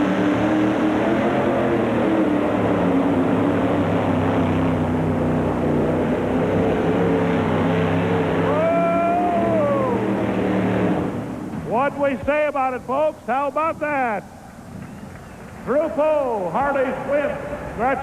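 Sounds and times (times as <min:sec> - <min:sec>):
vehicle engine running flat out: 0:00.0 - 0:12.0.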